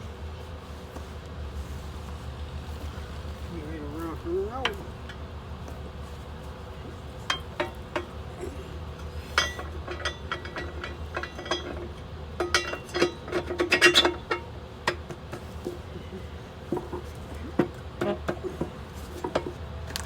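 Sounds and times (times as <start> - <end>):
low machine hum: 0.0 - 20.0
steel parts clinking: 7.2 - 14.4.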